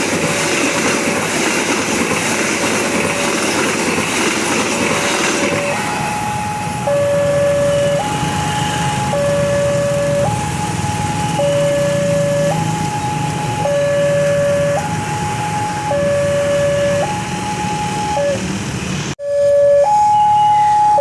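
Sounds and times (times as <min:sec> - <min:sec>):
level crossing two-tone alarm: 0:03.0 - 0:03.7, 0:05.4 - 0:18.5, 0:19.2 - 0:21.0.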